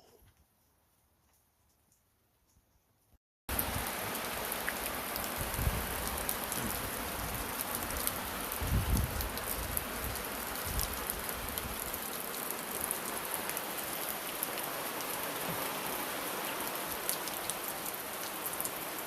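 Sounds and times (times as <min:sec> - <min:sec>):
steady rain falling: 0:03.5 - 0:19.0.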